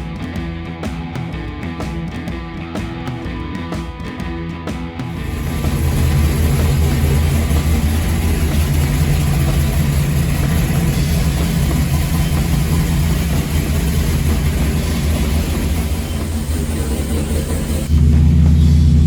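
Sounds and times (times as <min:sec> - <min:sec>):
engine running steadily: 0:05.1 - 0:19.0.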